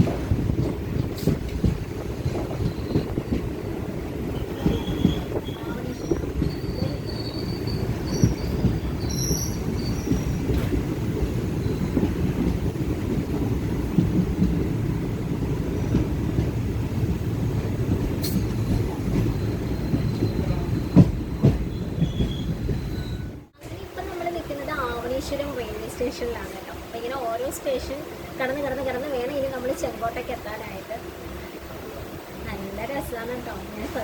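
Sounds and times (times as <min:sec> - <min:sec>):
train rumbling on rails: 0:00.0 - 0:34.0
high wheel squeals: 0:04.4 - 0:10.6, 0:11.4 - 0:12.2, 0:18.2 - 0:23.5.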